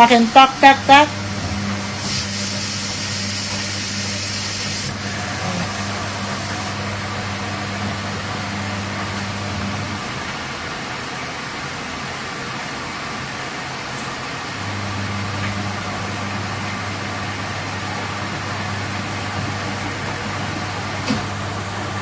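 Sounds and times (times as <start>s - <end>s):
washing machine hum: 0.0s - 22.0s
water rushing hiss: 2.0s - 6.8s.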